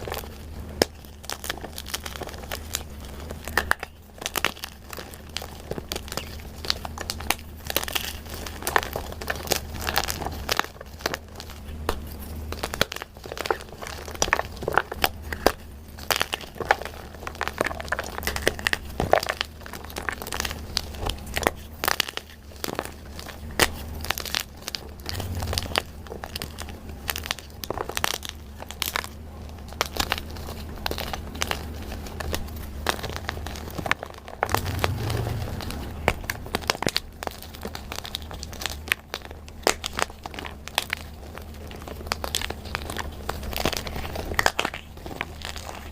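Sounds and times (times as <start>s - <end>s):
low steady hum: 0.0s - 45.9s.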